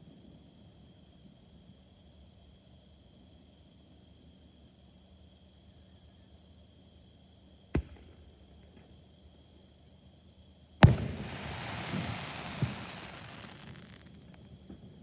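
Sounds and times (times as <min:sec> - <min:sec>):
small firework pops: 0:07.8 - 0:09.0, 0:10.8 - 0:15.0
firework bang: 0:10.8 - 0:14.9
long crackling hiss: 0:10.8 - 0:15.0.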